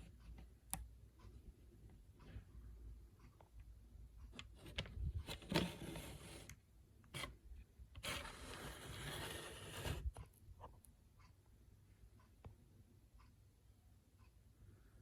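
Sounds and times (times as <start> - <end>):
small hard object scraping: 8.0 - 10.2.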